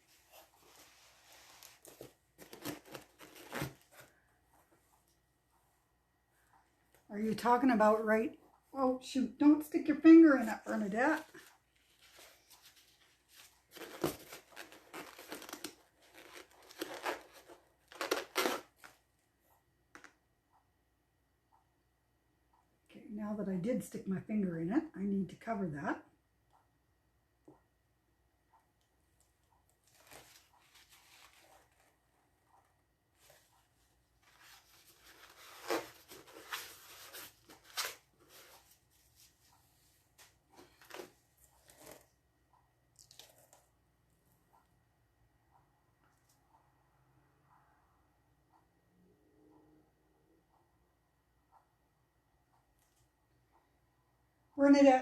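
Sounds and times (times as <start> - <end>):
crinkling rustling handling noise: 0.0 - 4.8, 10.2 - 19.0, 29.8 - 32.0.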